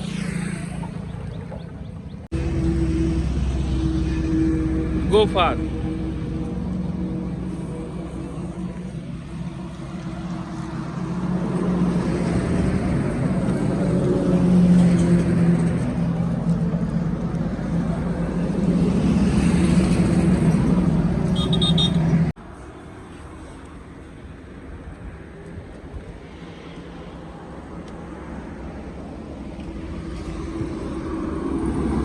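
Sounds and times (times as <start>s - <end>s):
engine running: 0.0s - 22.4s.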